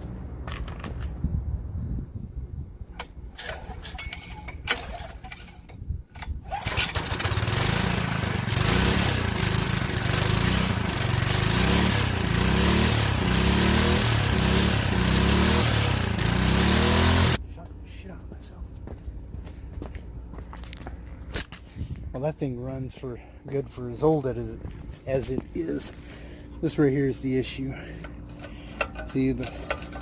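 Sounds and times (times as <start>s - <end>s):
engine starting knocks and clicks: 3.0s - 11.5s, 28.0s - 30.0s
small gasoline engine revving: 6.5s - 17.4s.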